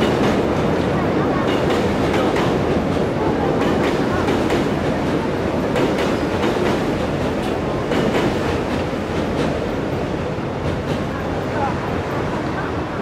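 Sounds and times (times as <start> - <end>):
wheels clacking over rail joints: 0.0 - 10.0
train rumbling on bridge: 0.0 - 13.0.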